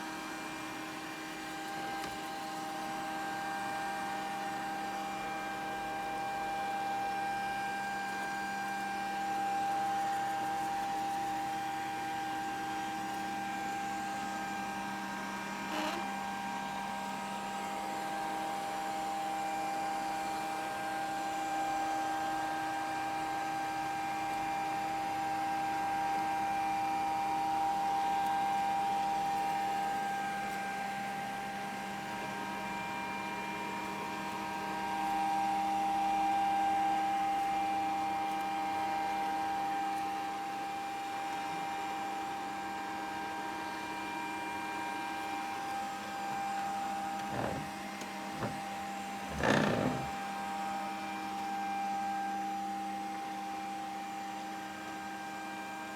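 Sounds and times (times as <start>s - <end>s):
robot vacuum motor whine: 13.8s - 16.6s, 47.0s - 50.2s.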